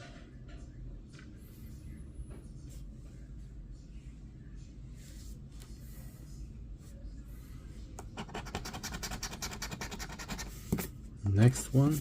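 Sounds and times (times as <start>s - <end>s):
scratching lottery ticket: 8.1s - 12.0s.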